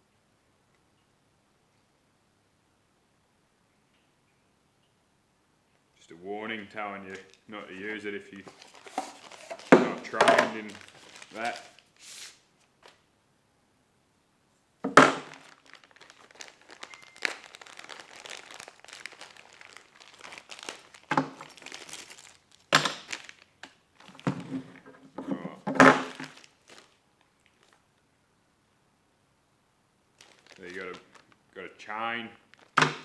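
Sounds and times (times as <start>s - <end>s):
packaging crinkling and tearing: 7.1s - 13.0s, 15.0s - 24.4s, 25.8s - 27.8s, 30.1s - 31.5s, 32.4s - 33.0s.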